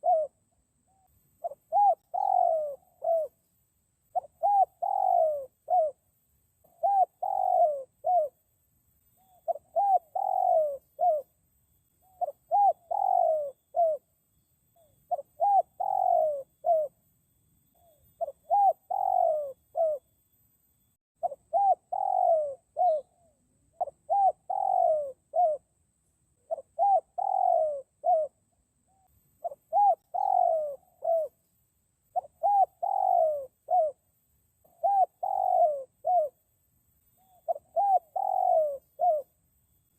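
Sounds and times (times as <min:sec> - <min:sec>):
dove cooing: 0:00.0 - 0:03.4, 0:04.1 - 0:08.4, 0:09.2 - 0:11.4, 0:12.0 - 0:14.1, 0:14.8 - 0:17.1, 0:17.7 - 0:20.1, 0:21.2 - 0:25.8, 0:26.4 - 0:31.4, 0:32.1 - 0:36.5, 0:37.2 - 0:39.4.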